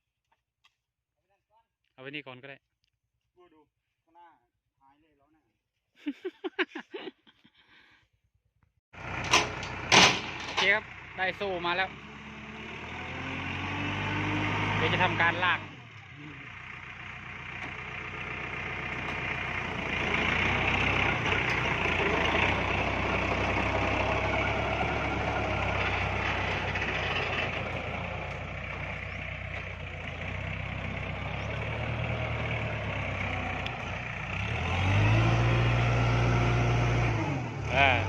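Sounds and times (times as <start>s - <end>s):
diesel tractor engine under load: 9.0s - 38.0s.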